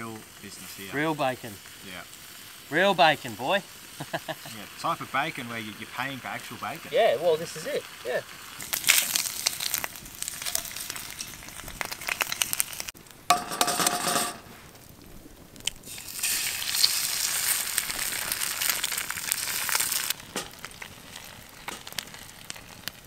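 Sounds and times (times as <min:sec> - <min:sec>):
bacon sizzling in a frying pan: 0:00.0 - 0:23.0
eggs cracked into a pan: 0:08.6 - 0:14.3.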